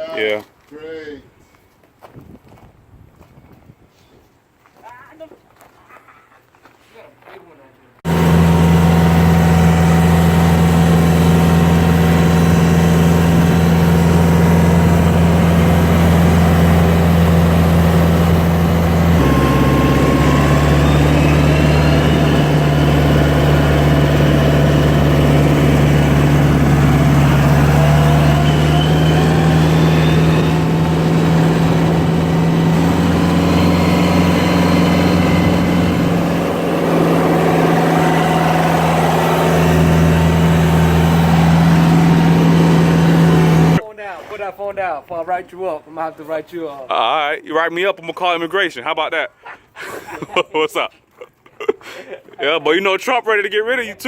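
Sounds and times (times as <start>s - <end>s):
large engine running: 8.0s - 43.8s
faint rising whines: 8.1s - 43.8s.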